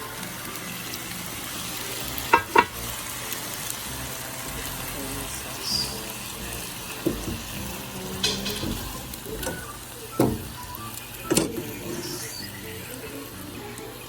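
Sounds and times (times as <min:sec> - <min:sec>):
noodles sizzling in a pan: 0:00.0 - 0:14.0
utensil knocking against pan: 0:02.3 - 0:02.8, 0:07.0 - 0:09.6.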